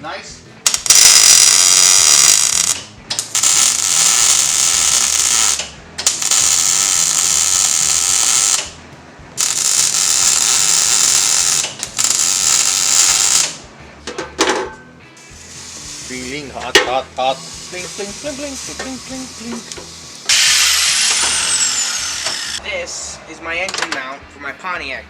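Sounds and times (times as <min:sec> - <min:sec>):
power tool hissing whirr: 0:09.4 - 0:13.6, 0:15.2 - 0:22.6.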